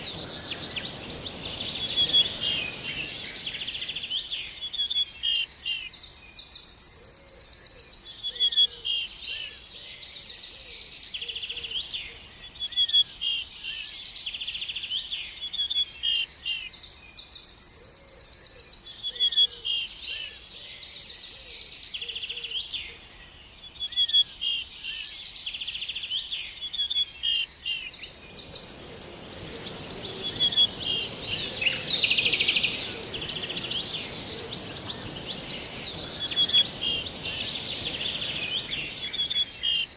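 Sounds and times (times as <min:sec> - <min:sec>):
songbird trilling: 0:00.0 - 0:04.3, 0:27.9 - 0:39.9
steady high hiss: 0:00.0 - 0:04.4, 0:27.9 - 0:39.9
short bird chirps: 0:28.0 - 0:39.9.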